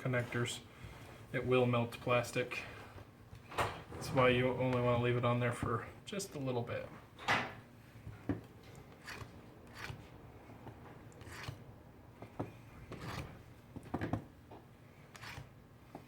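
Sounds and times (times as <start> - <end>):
small hand tools scraping: 8.6 - 10.1, 11.1 - 11.6, 12.6 - 13.4, 15.0 - 15.6.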